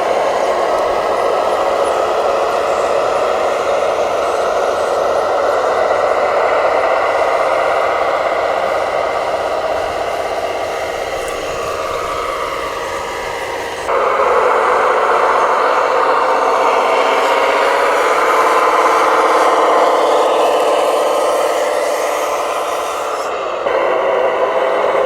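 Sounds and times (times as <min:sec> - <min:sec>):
electric motor and gearbox whine: 0:00.0 - 0:25.0.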